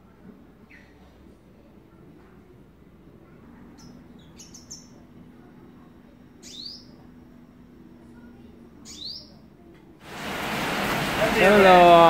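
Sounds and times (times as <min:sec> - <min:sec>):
sunbird chirping: 0:03.7 - 0:05.1, 0:06.4 - 0:07.0.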